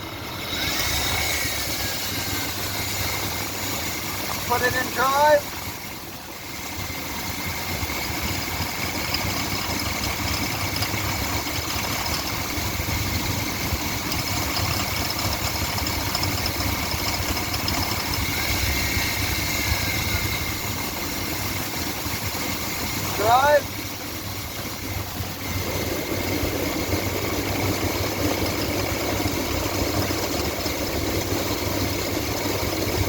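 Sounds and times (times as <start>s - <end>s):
engine idling: 0.0s - 33.0s
high-pitched whine: 17.1s - 28.7s.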